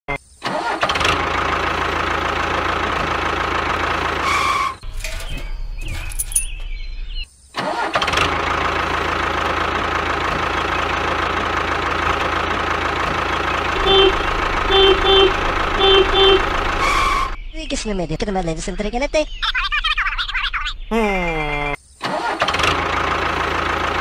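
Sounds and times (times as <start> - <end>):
tractor engine running: 0.5 - 6.8, 7.7 - 17.8, 22.1 - 24.0.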